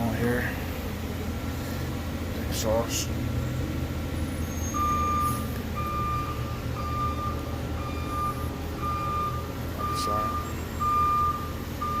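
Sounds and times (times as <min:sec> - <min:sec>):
low engine rumble: 0:00.0 - 0:12.0
backup alarm beeping: 0:04.7 - 0:12.0.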